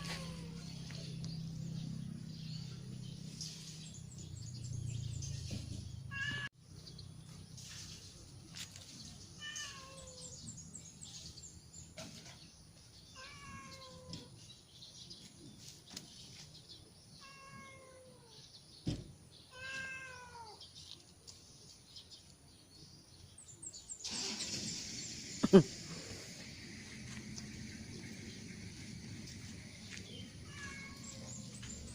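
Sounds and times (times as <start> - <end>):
cat meowing: 6.1 - 6.5, 9.4 - 10.3, 13.2 - 14.3, 17.2 - 18.4, 19.5 - 20.6, 30.4 - 31.6.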